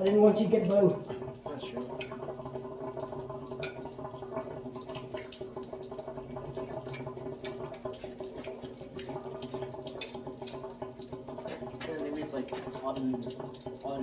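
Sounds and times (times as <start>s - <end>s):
water drips and splashes: 0.0s - 14.0s
water running: 0.0s - 14.0s.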